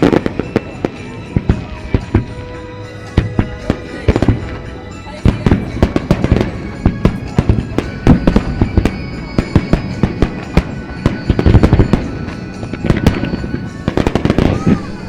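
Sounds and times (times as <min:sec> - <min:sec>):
fireworks bursting: 0:00.0 - 0:15.0
music: 0:00.0 - 0:15.0.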